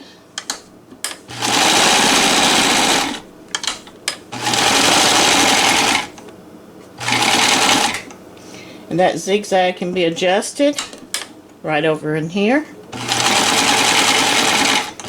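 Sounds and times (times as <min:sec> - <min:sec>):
sewing machine stitching: 0:01.3 - 0:06.2, 0:07.0 - 0:08.1, 0:12.9 - 0:15.0.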